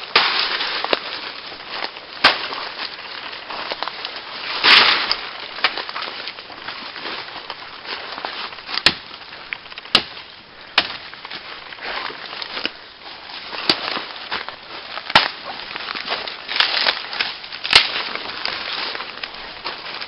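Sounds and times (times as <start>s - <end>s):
rustling crackle: 0.0s - 20.0s
sharp cracks: 8.7s - 11.2s, 15.0s - 15.5s, 16.1s - 18.2s.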